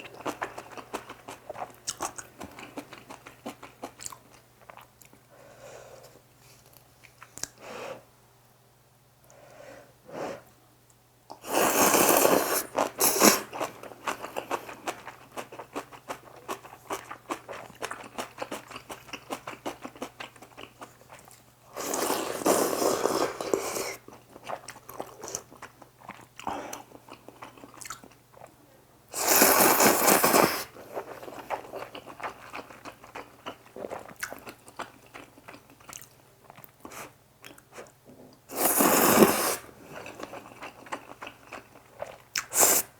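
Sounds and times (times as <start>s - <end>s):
slurping noodles: 11.4s - 13.7s, 21.7s - 24.1s, 29.2s - 31.7s, 38.5s - 40.3s, 42.4s - 42.9s
wet chewing: 29.2s - 37.9s.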